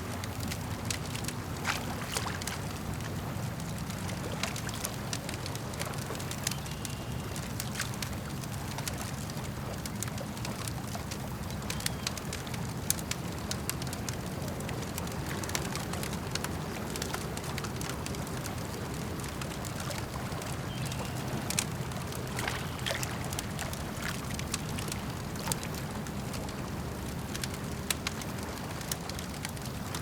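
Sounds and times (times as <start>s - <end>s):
campfire crackling: 0.0s - 30.0s
lake water lapping: 0.0s - 30.0s.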